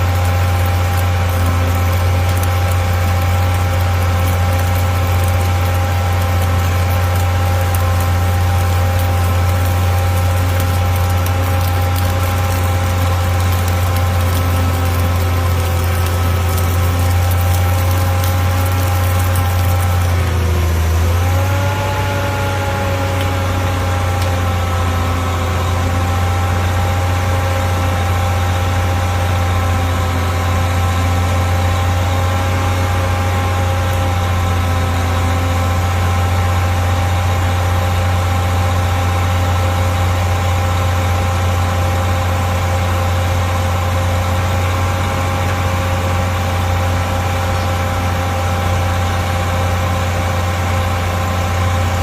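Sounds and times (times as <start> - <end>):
engine idling: 0.0 - 52.0.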